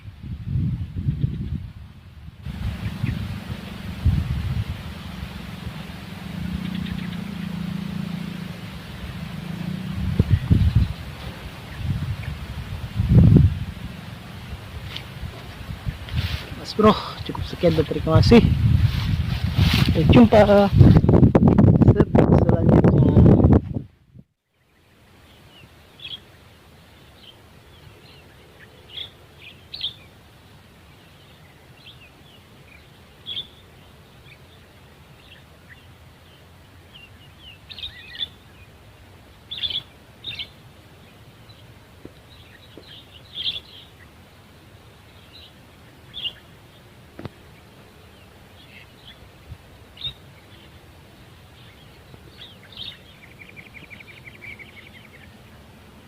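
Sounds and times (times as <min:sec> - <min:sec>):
low background rumble: 0:00.0 - 0:25.4
rapid buzzy bird trill: 0:02.4 - 0:19.2.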